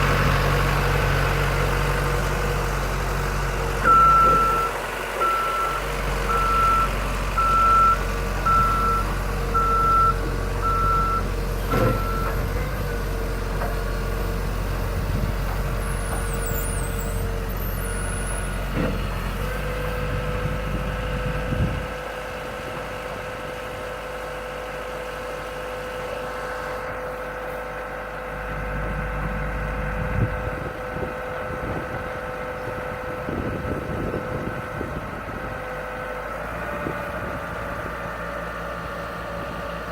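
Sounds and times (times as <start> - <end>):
telehandler engine running: 0.0 - 39.9
reversing alarm beeping: 3.8 - 12.4.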